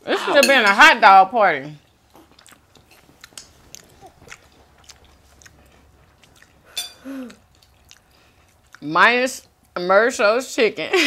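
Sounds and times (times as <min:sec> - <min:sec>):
people chewing food: 0:01.7 - 0:09.8
person murmuring: 0:07.0 - 0:07.4.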